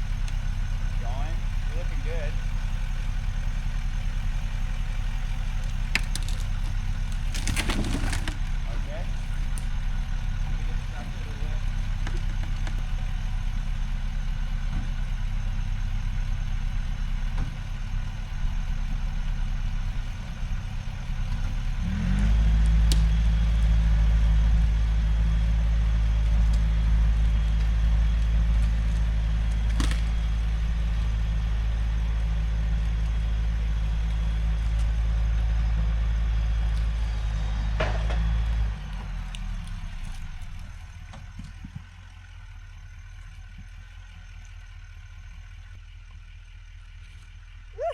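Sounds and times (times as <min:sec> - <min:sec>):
truck engine: 0:00.0 - 0:47.9.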